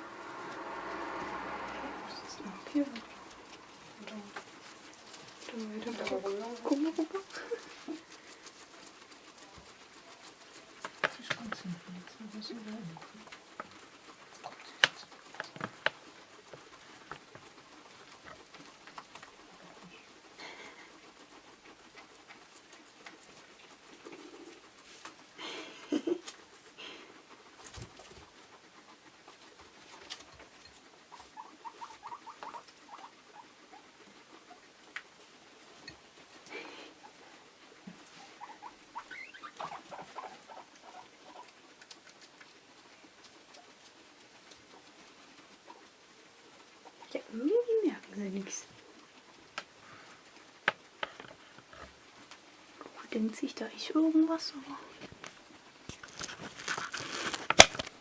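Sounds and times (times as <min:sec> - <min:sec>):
guinea pigs squeaking: 0:00.0 - 0:25.3, 0:25.9 - 0:53.2
small clicks and rustles: 0:02.8 - 0:58.0
squeaky guinea pig call: 0:31.1 - 0:33.8, 0:38.4 - 0:41.0.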